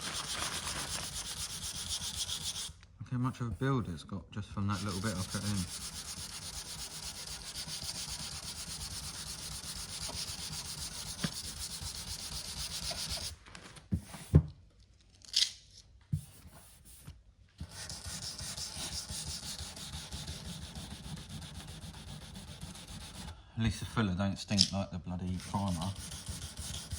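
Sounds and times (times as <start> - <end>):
sandpaper rubbing on filler: 0.0 - 2.8, 4.6 - 13.4, 16.2 - 23.4, 25.3 - 26.9.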